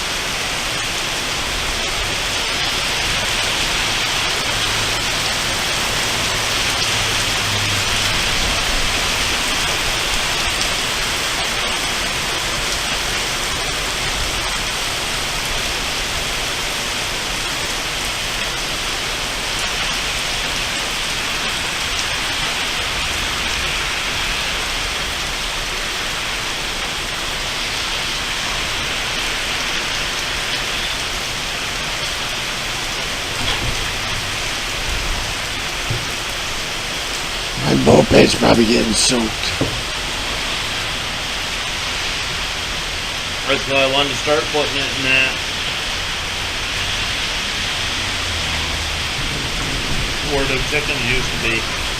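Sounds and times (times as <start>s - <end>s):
heavy rain pouring: 0.0s - 51.9s
faint low thunder rumble: 48.7s - 51.9s.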